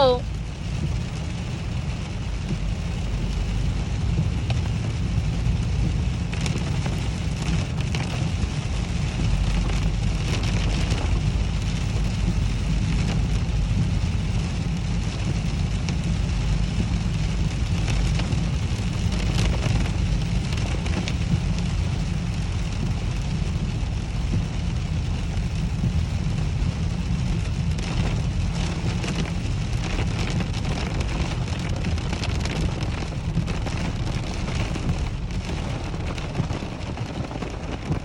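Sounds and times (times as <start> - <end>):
heavy rain falling: 0.0 - 38.0.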